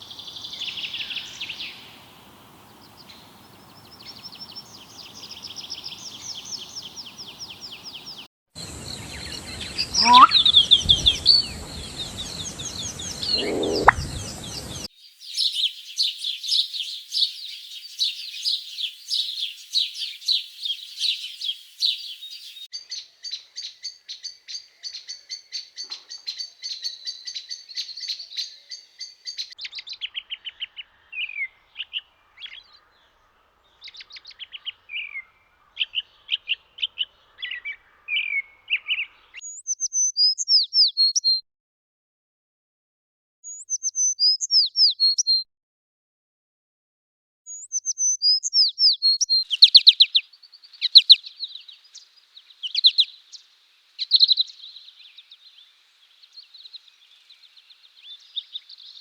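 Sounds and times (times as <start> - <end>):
small birds chirping: 0.0 - 41.4, 43.4 - 45.4, 47.5 - 59.0
lower sliding bird calls: 2.8 - 14.9, 49.5 - 53.4.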